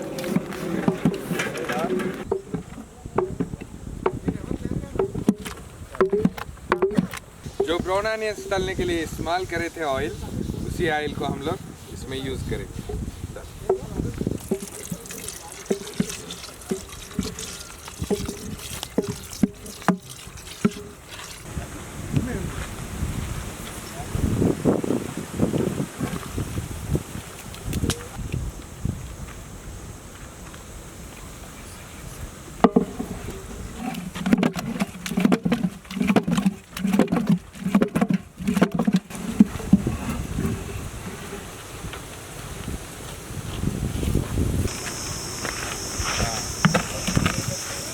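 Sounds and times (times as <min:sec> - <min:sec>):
wet slapping stirring strokes: 0:00.0 - 0:02.6, 0:05.0 - 0:21.5, 0:32.6 - 0:42.8, 0:44.6 - 0:47.9
wet plops and knocks in pot: 0:14.4 - 0:21.4.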